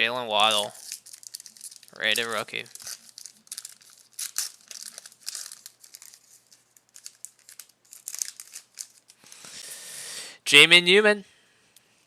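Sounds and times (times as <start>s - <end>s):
plastic packaging crinkling: 0.4s - 9.5s.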